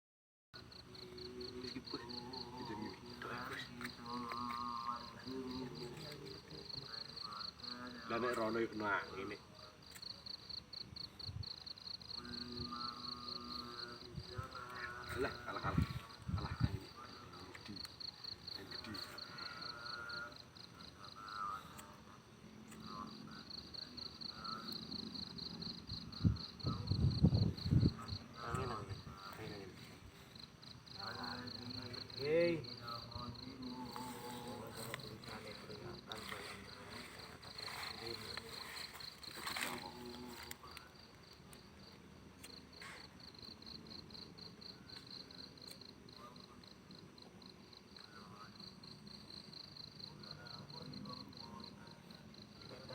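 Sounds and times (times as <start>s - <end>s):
insects chirping: 0.6s - 52.9s
wind buffeting microphone: 15.6s - 16.9s, 26.1s - 28.3s.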